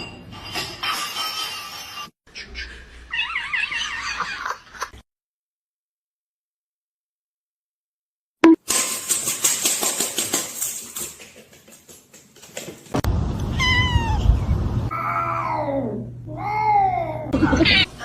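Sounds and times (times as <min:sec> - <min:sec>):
cat meowing: 0:13.5 - 0:16.9.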